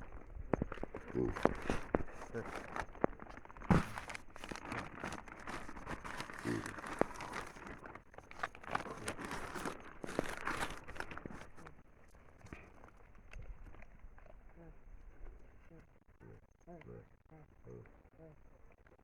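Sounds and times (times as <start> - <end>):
corn husks crinkling and tearing: 0.0 - 14.6.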